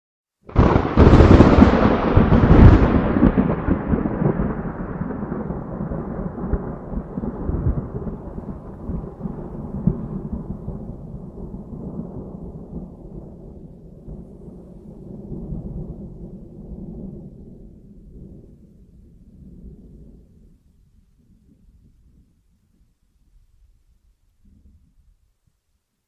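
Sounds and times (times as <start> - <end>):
thunderclap rumbling: 0.5 - 20.6.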